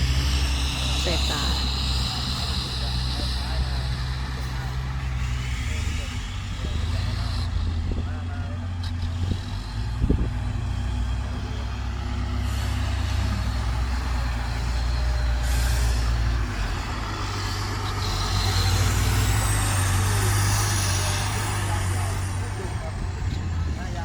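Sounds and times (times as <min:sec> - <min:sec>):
truck diesel engine running: 0:00.0 - 0:24.0.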